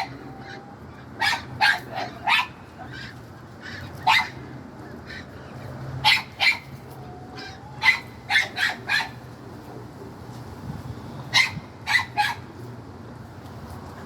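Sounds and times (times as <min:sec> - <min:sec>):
dog barking: 0:07.8 - 0:09.2, 0:11.4 - 0:12.4.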